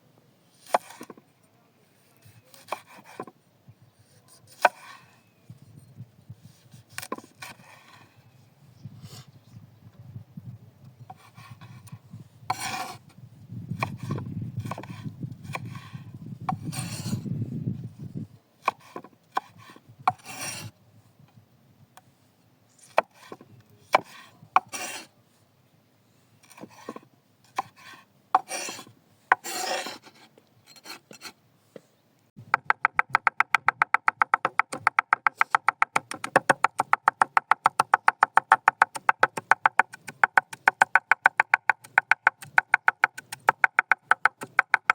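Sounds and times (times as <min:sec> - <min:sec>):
utensils scraping on wooden surface: 0:12.5 - 0:13.0, 0:13.8 - 0:17.2, 0:18.7 - 0:20.7, 0:22.8 - 0:25.1, 0:26.4 - 0:31.4.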